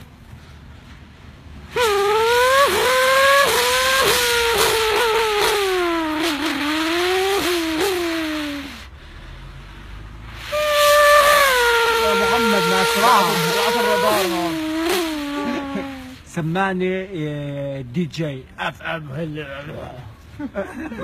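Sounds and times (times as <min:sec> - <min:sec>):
man imitating race car engine: 0:01.8 - 0:08.9, 0:10.5 - 0:16.3.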